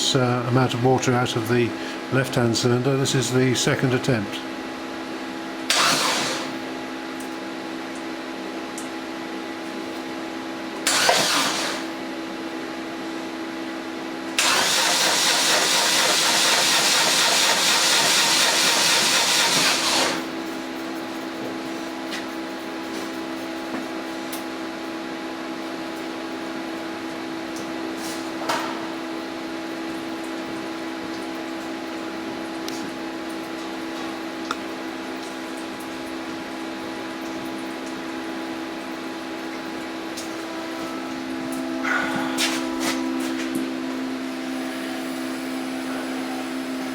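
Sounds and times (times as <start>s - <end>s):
engine cranking on starter: 5.7s - 6.6s, 10.8s - 12.0s, 14.4s - 20.3s
steady low hum: 38.6s - 46.9s.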